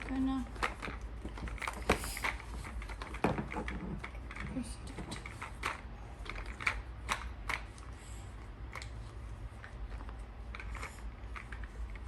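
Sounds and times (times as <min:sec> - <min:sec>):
plastic toy parts clicking: 0:05.2 - 0:07.7.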